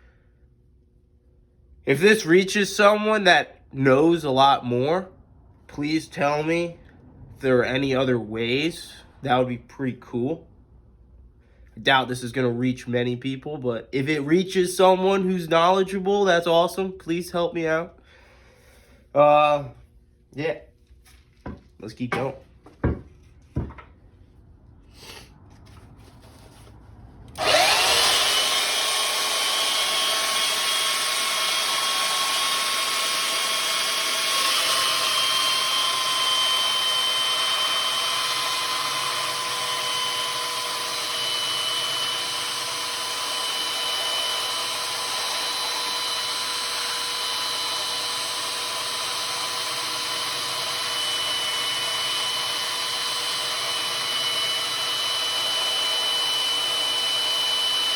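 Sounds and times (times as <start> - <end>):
electric grinder grinding steel: 27.4 - 57.9.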